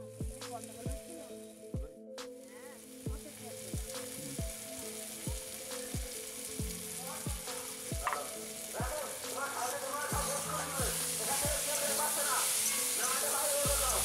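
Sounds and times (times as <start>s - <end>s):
background music with drum beat: 0.0s - 14.0s
vegetables sizzling in oil: 2.4s - 14.0s.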